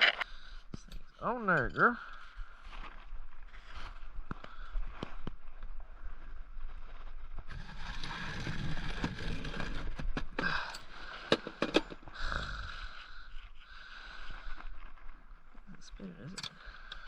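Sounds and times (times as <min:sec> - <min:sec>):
steel grinding and scraping: 0:07.5 - 0:10.1.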